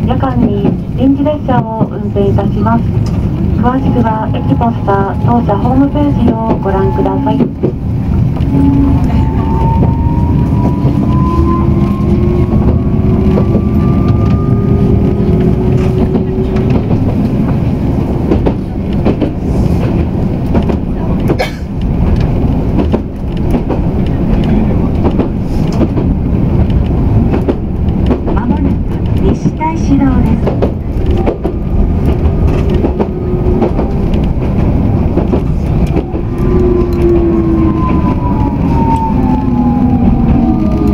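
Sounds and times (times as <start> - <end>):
wheels rumbling on rail: 0.0 - 40.9
train motor whine: 8.4 - 17.1.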